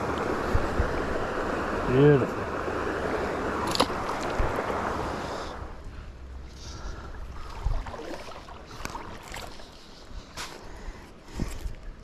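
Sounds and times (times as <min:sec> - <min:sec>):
wind rumble on microphone: 0:00.0 - 0:05.8
creek water rushing: 0:00.0 - 0:10.5.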